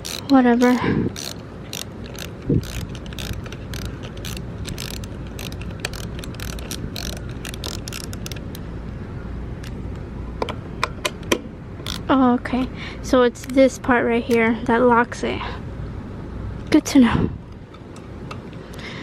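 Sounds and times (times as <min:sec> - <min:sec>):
ratchet wrench clicking: 0:00.0 - 0:08.6, 0:11.8 - 0:12.1.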